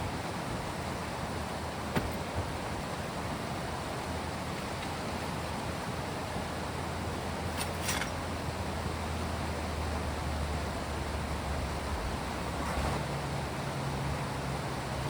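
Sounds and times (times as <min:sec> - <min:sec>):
rain: 0:00.0 - 0:15.0
river water flowing: 0:00.0 - 0:15.0.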